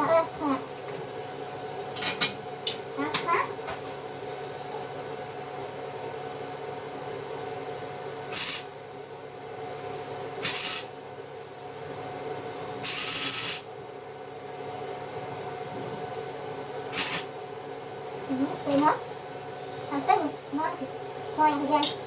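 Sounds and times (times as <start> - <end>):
welder electrical hum: 0.0 - 22.0
welder crackling hiss: 8.4 - 8.7, 10.4 - 10.9, 12.8 - 13.6, 17.0 - 17.3.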